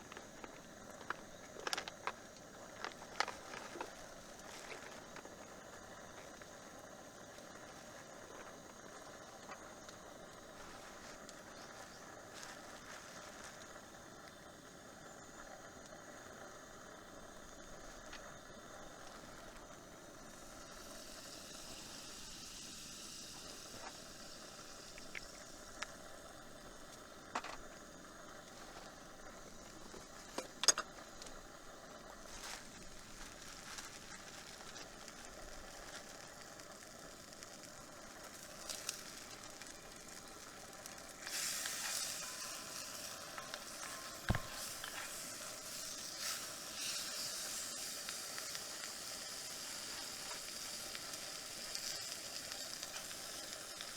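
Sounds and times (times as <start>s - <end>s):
sharp clicks and crackles: 0.0s - 6.6s, 24.9s - 26.0s, 26.9s - 27.8s, 28.4s - 31.5s, 32.1s - 53.9s
food sizzling in a pan: 0.0s - 53.9s
low hiss: 0.0s - 53.9s.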